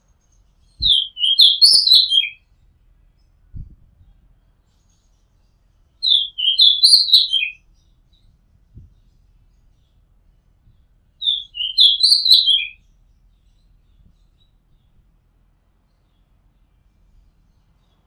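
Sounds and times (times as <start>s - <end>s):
bird singing whistled notes: 0.6s - 2.4s, 6.0s - 8.3s, 11.2s - 12.8s.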